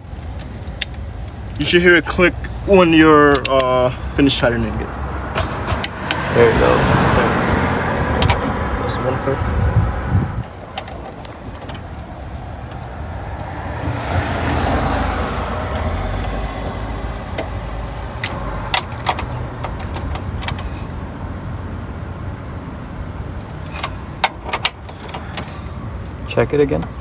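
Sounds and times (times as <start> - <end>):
broad rush of noise: 0.0 - 21.6
torque wrench clicks: 3.3 - 3.7.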